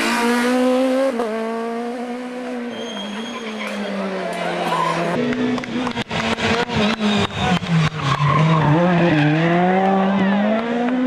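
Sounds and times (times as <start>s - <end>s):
rally car engine accelerating: 3.8s - 11.0s.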